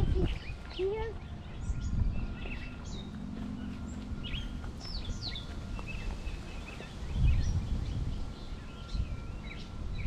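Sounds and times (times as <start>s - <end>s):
birds chirping: 0.0s - 10.0s
steady low rumble: 0.0s - 10.0s.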